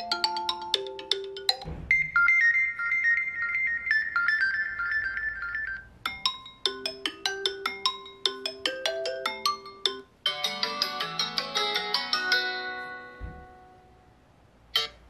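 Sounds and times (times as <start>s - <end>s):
phone ringtone melodies: 0.0s - 13.8s, 14.8s - 15.0s.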